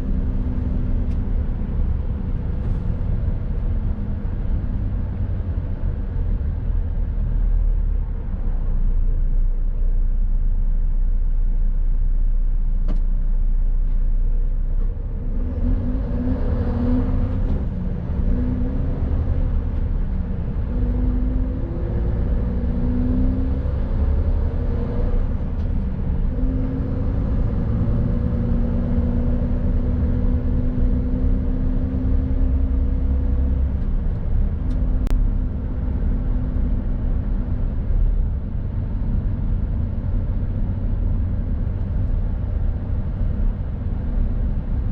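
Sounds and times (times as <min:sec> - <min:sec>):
low road rumble: 0:00.0 - 0:44.9.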